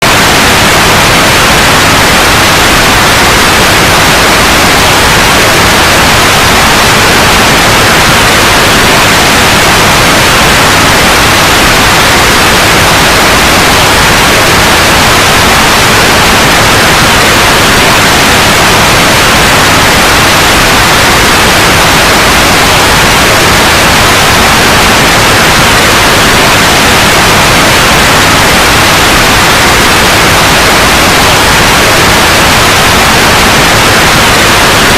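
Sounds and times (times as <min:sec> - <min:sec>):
loud white noise hiss: 0:00.0 - 0:34.9.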